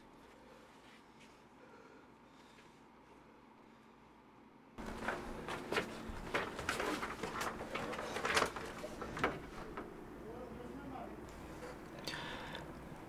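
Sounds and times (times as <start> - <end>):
knocks and clatters of objects: 4.8 - 9.9.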